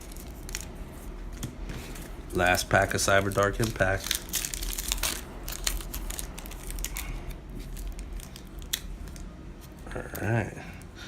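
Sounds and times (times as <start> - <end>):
foil wrapper crinkling and tearing: 0.0 - 0.8, 2.0 - 9.3.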